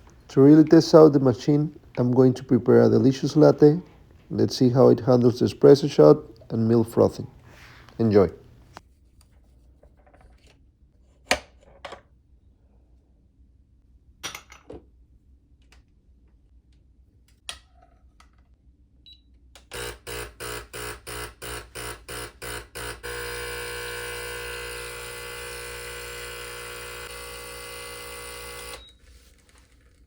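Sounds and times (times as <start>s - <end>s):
espresso machine pump buzzing: 19.8s - 28.9s.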